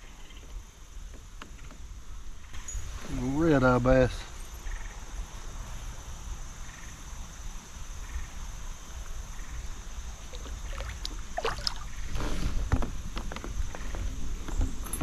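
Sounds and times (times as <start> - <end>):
water splashing against kayak: 10.2 - 13.0.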